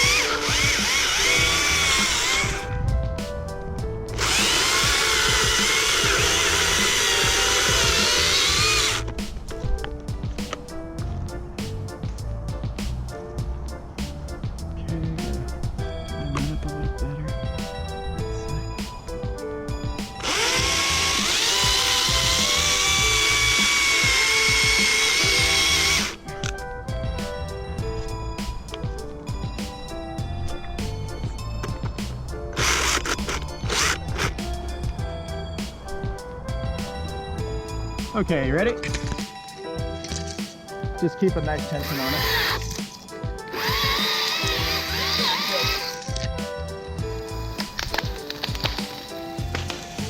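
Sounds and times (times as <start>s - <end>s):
chainsaw cutting wood: 0.0s - 2.7s, 4.1s - 9.1s, 20.1s - 26.2s, 32.6s - 34.4s, 41.7s - 42.8s, 43.5s - 46.2s
background music: 0.0s - 50.0s.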